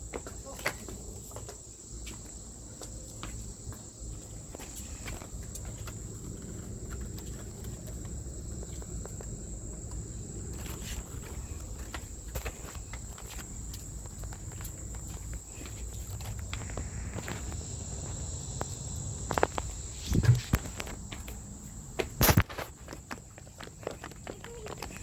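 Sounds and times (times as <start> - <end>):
footsteps: 0.0 - 25.0
high-pitched insect trill: 0.0 - 25.0.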